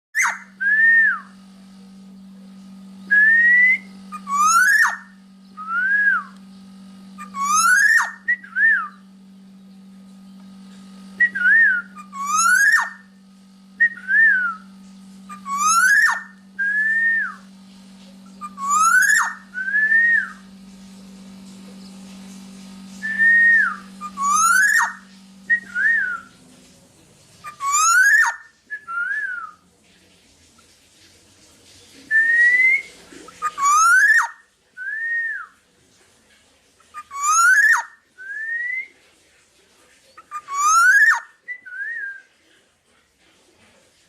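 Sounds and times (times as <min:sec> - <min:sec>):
harsh rasping bird notes: 0:00.2 - 0:00.6, 0:03.2 - 0:06.3, 0:07.2 - 0:08.9, 0:11.2 - 0:13.2, 0:15.3 - 0:17.4, 0:18.2 - 0:20.5, 0:21.8 - 0:26.4, 0:27.4 - 0:28.5
bird fluty whistled song: 0:00.2 - 0:01.4, 0:03.1 - 0:06.4, 0:07.2 - 0:09.1, 0:11.2 - 0:13.1, 0:13.8 - 0:14.7, 0:15.3 - 0:17.5, 0:18.3 - 0:20.5, 0:23.0 - 0:26.3, 0:27.4 - 0:29.6, 0:32.1 - 0:35.6, 0:37.0 - 0:38.9, 0:40.2 - 0:42.3
steady low hum: 0:00.2 - 0:40.5.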